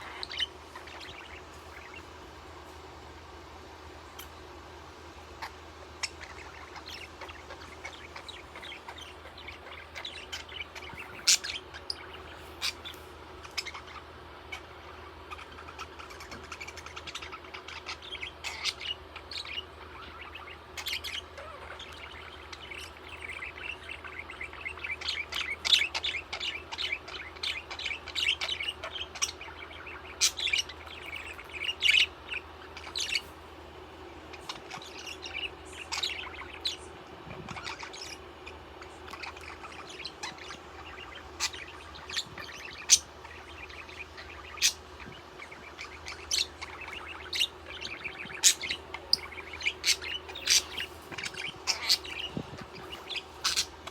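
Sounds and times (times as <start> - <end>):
budgerigar chirping and chattering: 0.0 - 2.2, 5.3 - 33.4, 34.2 - 53.9.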